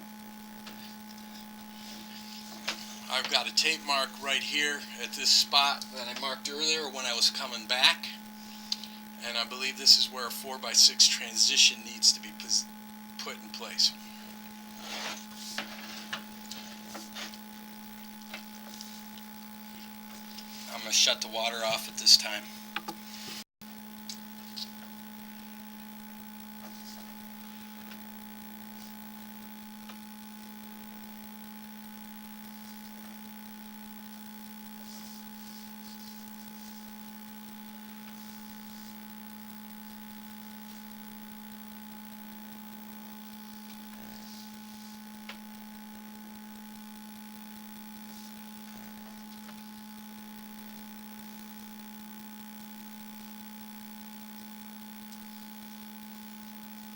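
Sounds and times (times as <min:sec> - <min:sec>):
electrical hum: 0:00.0 - 0:56.9
high whine: 0:00.0 - 0:56.9.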